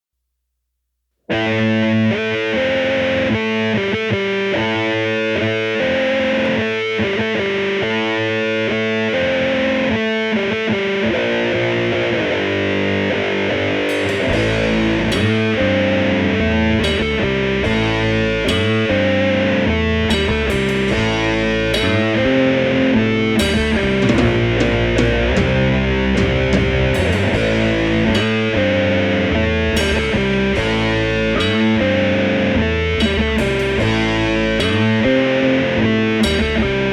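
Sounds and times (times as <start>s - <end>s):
distorted electric guitar riff: 1.3s - 36.9s
crashing cymbals: 13.9s - 19.5s, 20.1s - 28.6s
heavy bass and drums: 13.9s - 36.9s.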